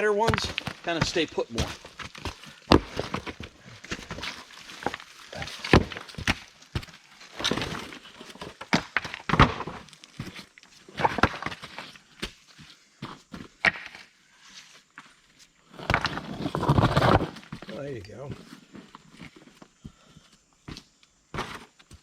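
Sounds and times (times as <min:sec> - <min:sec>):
footsteps scuffing on rocky ground: 0:00.0 - 0:13.8
rocks knocking and clacking: 0:00.0 - 0:14.1, 0:15.7 - 0:19.6.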